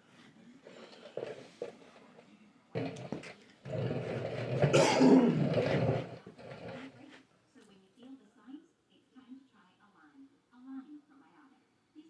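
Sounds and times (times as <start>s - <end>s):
person coughing: 4.6s - 5.9s.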